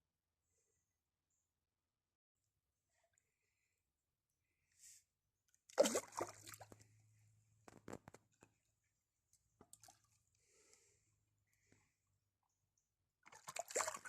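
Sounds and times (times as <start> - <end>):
water sloshing and splashing: 5.7 - 7.0, 9.6 - 10.2, 13.2 - 14.0.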